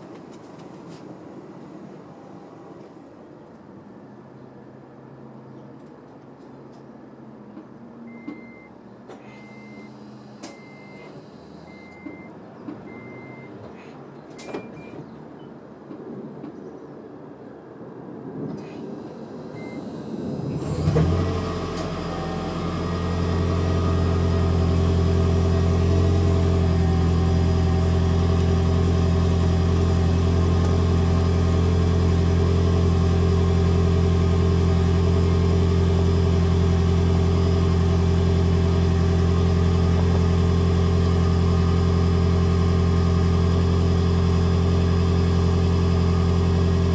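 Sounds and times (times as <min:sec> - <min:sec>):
car engine starting and idling: 0:07.6 - 0:15.1, 0:18.6 - 0:46.9
short high beeps: 0:08.1 - 0:11.1, 0:12.9 - 0:13.6.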